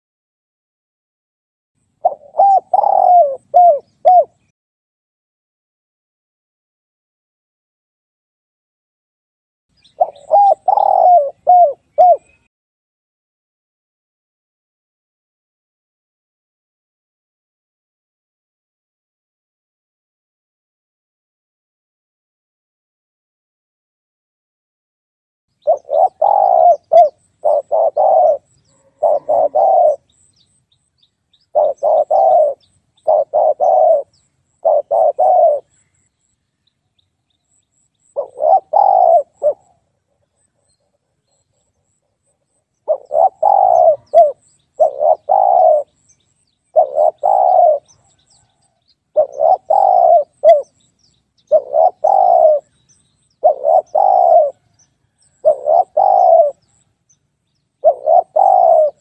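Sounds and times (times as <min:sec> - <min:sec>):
dove cooing: 0:02.0 - 0:04.5, 0:09.9 - 0:12.5, 0:25.6 - 0:30.3, 0:31.4 - 0:35.8, 0:38.1 - 0:41.2, 0:42.8 - 0:46.0, 0:46.7 - 0:50.8, 0:51.5 - 0:52.8, 0:53.4 - 0:56.8, 0:57.8 - 0:59.0.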